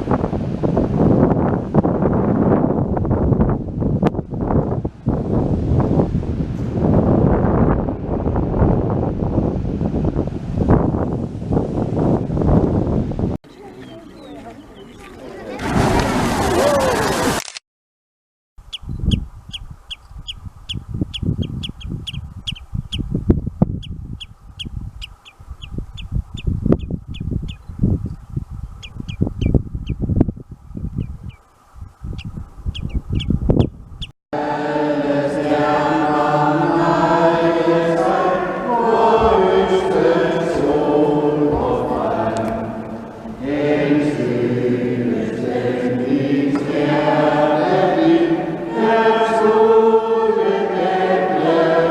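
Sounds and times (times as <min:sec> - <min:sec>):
bird chirping: 0:18.6 - 0:23.1, 0:28.7 - 0:30.0, 0:32.1 - 0:34.1
choir singing slow chant: 0:34.4 - 0:51.9.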